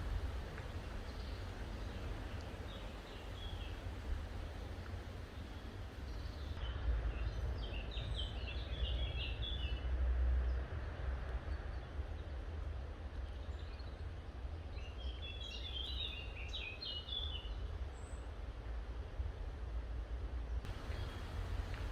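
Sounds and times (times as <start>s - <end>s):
steady low rumble: 0.0s - 7.5s, 20.7s - 21.9s
songbirds singing: 0.0s - 9.8s, 13.2s - 18.2s, 20.7s - 21.9s.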